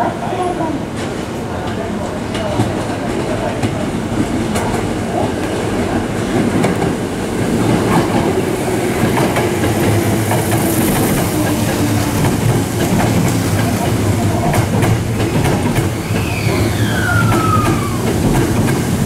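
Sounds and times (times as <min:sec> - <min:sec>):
train rumble: 0:00.0 - 0:19.0
wheels clacking over rail joints: 0:06.2 - 0:19.0.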